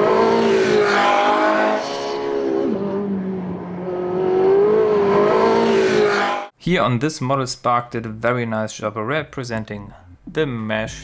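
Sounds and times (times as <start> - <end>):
car engine at high revs: 0.0 - 6.5.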